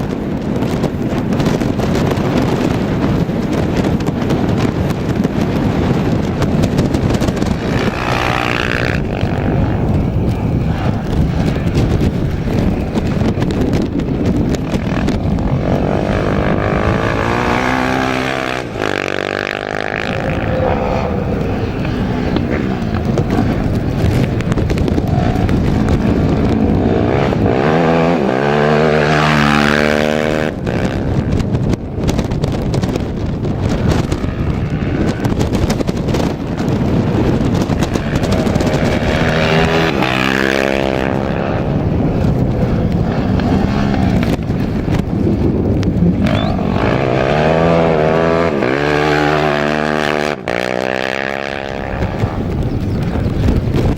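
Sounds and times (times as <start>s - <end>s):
steady rushing noise: 0.0s - 53.9s
racing engines passing by: 6.7s - 31.0s.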